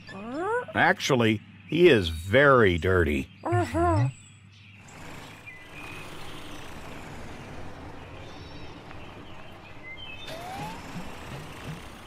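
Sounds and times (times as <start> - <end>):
truck engine running: 4.8 - 12.0.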